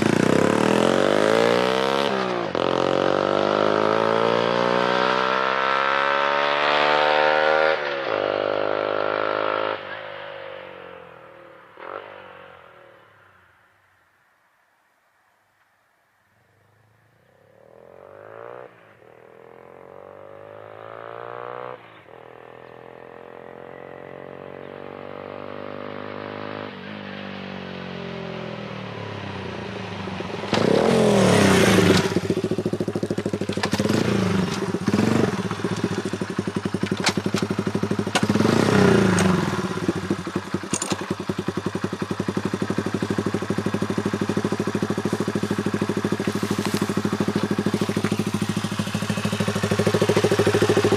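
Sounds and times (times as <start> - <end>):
motorcycle engine revving: 0.0 - 12.9, 17.4 - 50.9
motorcycle accelerating and shifting: 0.0 - 13.5, 16.5 - 50.9
motorcycle engine idling: 28.7 - 50.9.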